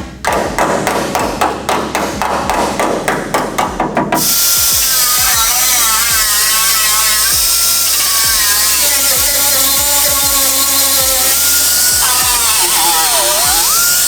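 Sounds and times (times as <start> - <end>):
power tool whining: 4.2 - 14.0.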